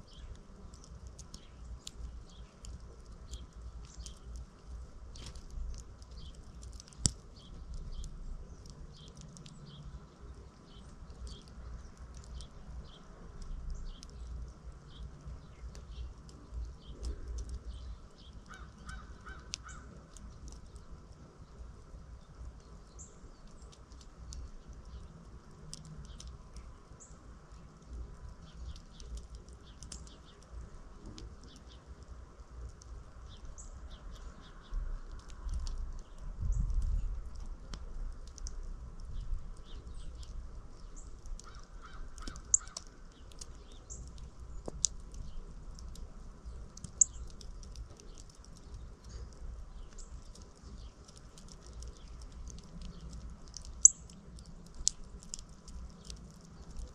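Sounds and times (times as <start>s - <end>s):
small birds chirping: 0.0s - 56.9s
sharp clicks: 27.8s - 32.1s, 41.0s - 56.9s.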